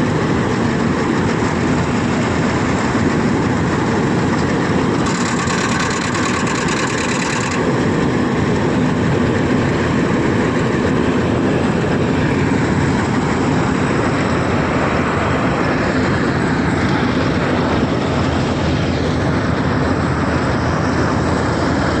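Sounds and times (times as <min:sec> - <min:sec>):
combine harvester running: 0:00.0 - 0:22.0.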